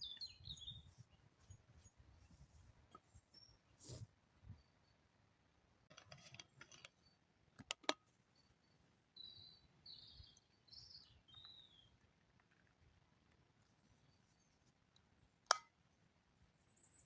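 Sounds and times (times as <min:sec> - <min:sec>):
faint bird chirps: 0:00.0 - 0:05.2, 0:08.1 - 0:12.7, 0:13.7 - 0:14.8, 0:16.4 - 0:17.0
sharp clicks: 0:07.6 - 0:08.0.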